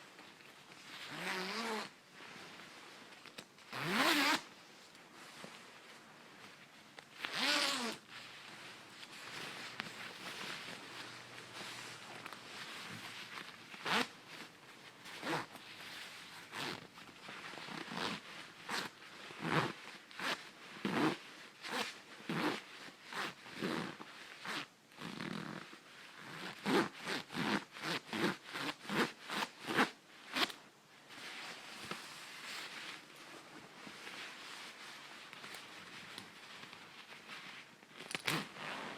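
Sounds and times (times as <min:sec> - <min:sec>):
faint rustle: 0:00.0 - 0:26.8, 0:28.5 - 0:38.9
zipper rasping: 0:00.8 - 0:02.0, 0:03.7 - 0:04.5, 0:07.1 - 0:30.6, 0:35.4 - 0:38.9.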